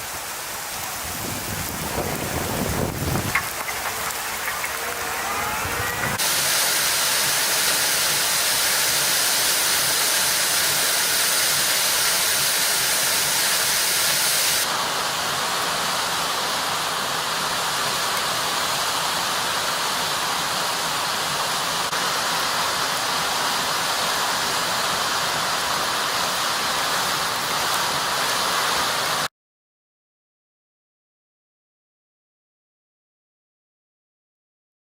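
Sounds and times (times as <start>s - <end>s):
steady rushing noise: 0.0s - 7.4s.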